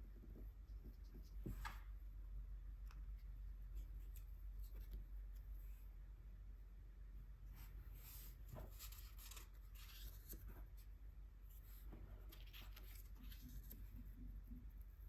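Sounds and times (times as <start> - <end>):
brush strokes on paper: 7.5 - 10.9.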